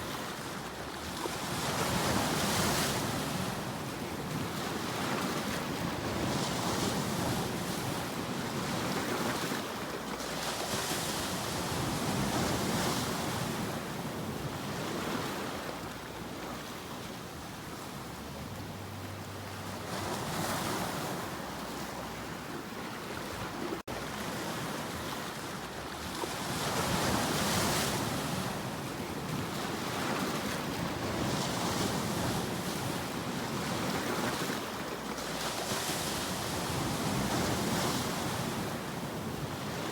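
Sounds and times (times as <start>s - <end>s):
waves breaking and washing in: 0.0s - 39.9s
steady rush of water: 15.5s - 31.6s.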